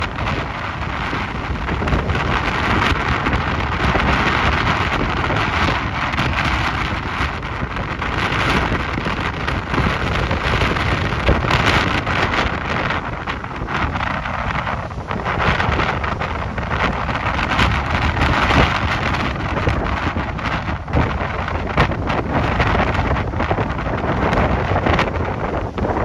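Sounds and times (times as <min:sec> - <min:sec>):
wind and rain rushing: 0:00.0 - 0:26.0
wind buffeting microphone: 0:00.0 - 0:26.0.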